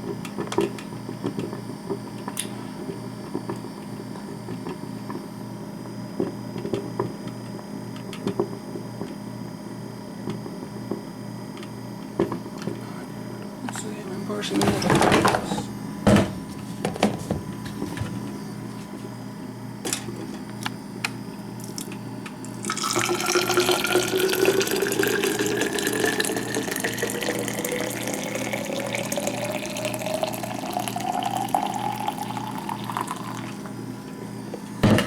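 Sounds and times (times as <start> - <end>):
tap water filling a container: 21.6 - 33.8.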